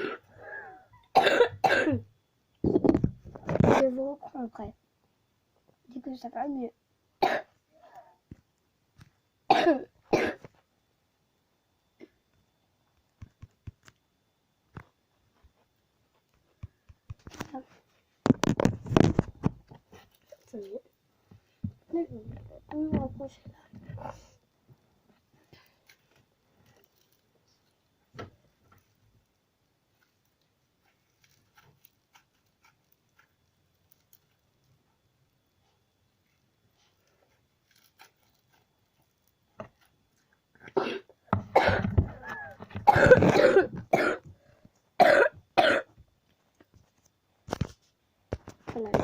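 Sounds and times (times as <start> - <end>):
person coughing: 0.0 - 2.0, 7.2 - 7.5, 9.5 - 10.5, 40.7 - 44.2, 45.0 - 45.9.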